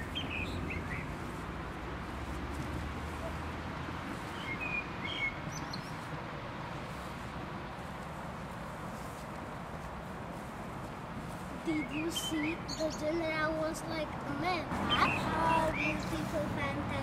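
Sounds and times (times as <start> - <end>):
bird chirps: 0.0 - 1.2, 4.3 - 6.0
outdoor background noise: 0.0 - 17.0.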